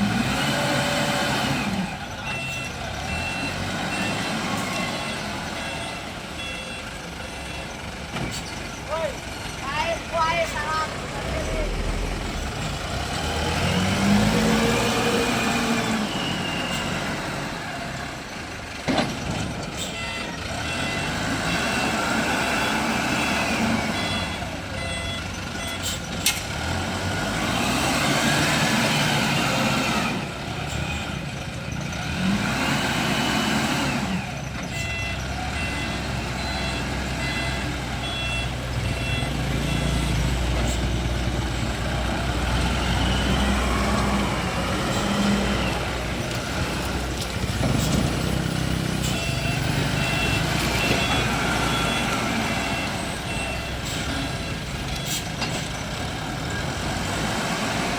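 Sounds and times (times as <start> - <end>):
wheel loader diesel engine revving: 0.0 - 57.9
reversing alarm beeping: 2.0 - 7.9, 19.8 - 26.2, 33.2 - 41.3, 47.4 - 56.8.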